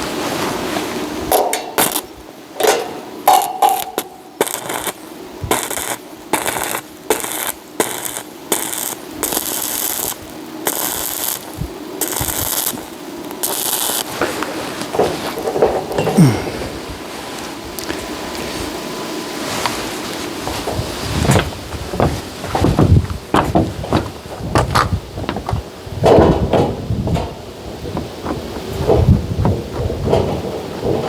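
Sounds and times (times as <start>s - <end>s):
welding crackling bursts: 0.9s - 16.3s.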